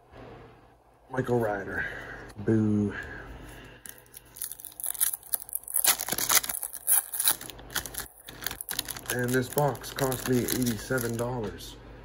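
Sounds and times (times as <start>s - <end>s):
card pack wrapper crinkling: 3.8s - 11.5s.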